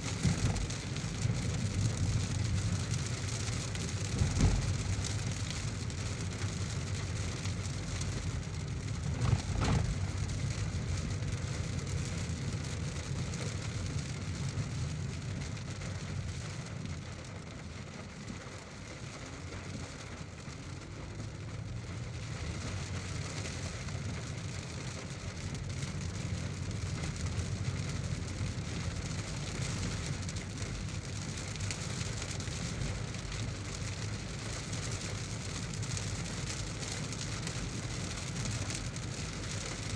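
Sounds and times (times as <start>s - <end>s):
heavy rain on a car: 0.0s - 39.9s
road and engine rumble: 0.0s - 39.9s
thump: 4.1s - 5.4s, 9.1s - 10.6s.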